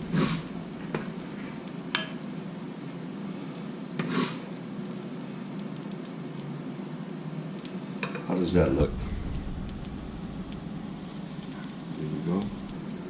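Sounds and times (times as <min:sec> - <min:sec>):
steady low hum: 0:00.0 - 0:03.6, 0:08.4 - 0:13.0.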